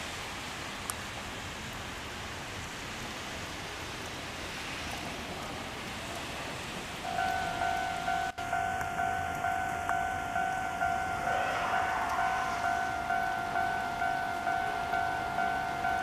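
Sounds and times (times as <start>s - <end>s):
light rain hissing: 0.0s - 16.0s
level-crossing warning bell: 7.0s - 16.0s.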